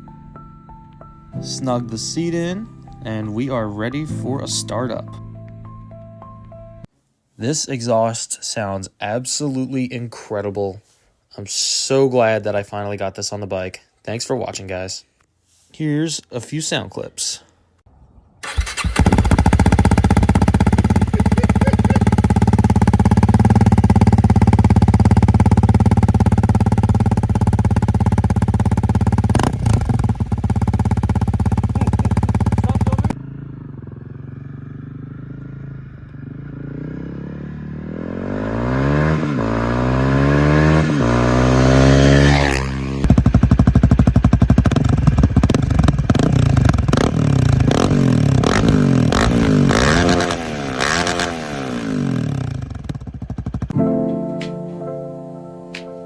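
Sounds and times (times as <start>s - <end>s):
motorcycle engine running and revving: 18.4s - 53.8s.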